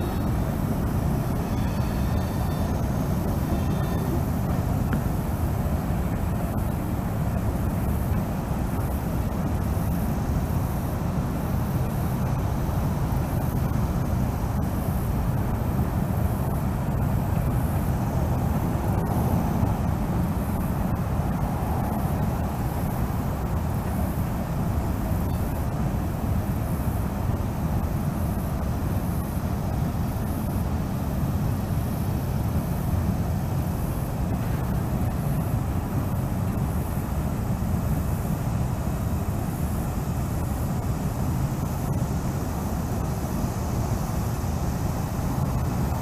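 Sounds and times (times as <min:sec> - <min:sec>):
train rumbling past: 0:00.0 - 0:25.1.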